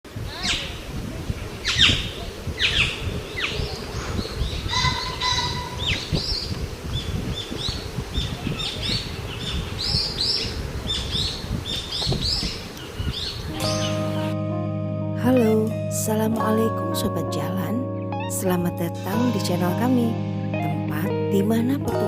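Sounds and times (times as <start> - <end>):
birds chirping: 0.4 - 14.4.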